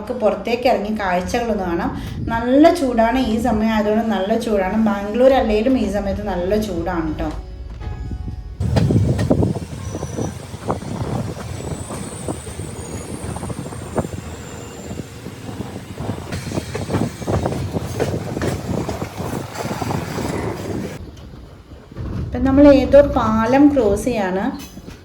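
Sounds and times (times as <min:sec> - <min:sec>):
train rumbling on track: 0:00.0 - 0:25.0
high wheel squeals: 0:06.2 - 0:22.0
wheels knocking over rails: 0:15.2 - 0:25.0.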